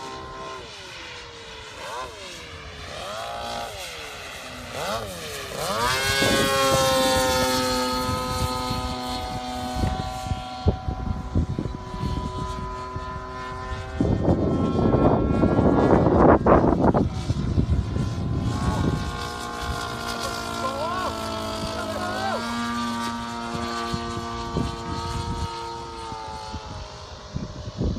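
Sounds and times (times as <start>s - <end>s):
model plane engine drone: 0.0s - 27.9s
rough rushing noise: 14.0s - 26.8s.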